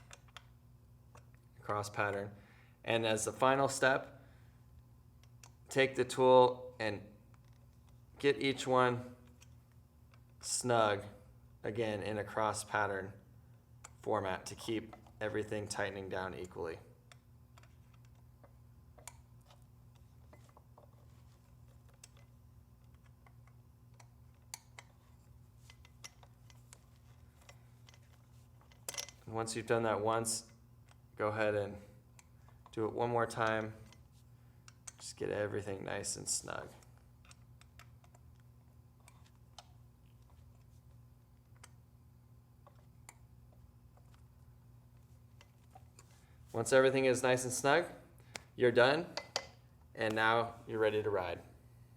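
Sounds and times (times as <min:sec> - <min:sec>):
low steady hum: 0:00.0 - 0:51.9
allen key clicking on bolts: 0:21.9 - 0:29.3.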